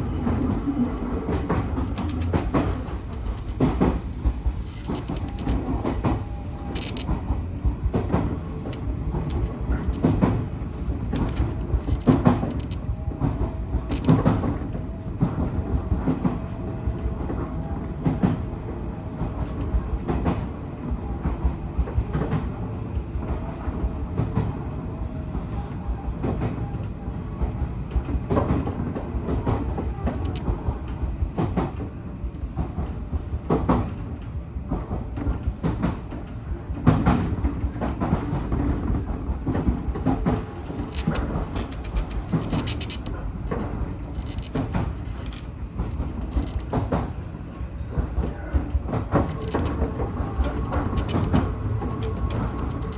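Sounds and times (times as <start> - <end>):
train rumbling: 0.0 - 52.9
wheels clacking over rail joints: 39.6 - 47.2, 48.0 - 52.9.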